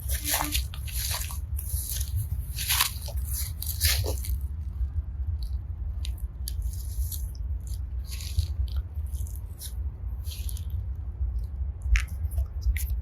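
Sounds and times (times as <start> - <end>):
steady low rumble: 0.0 - 13.0
slime crackling and squishing: 6.1 - 10.8.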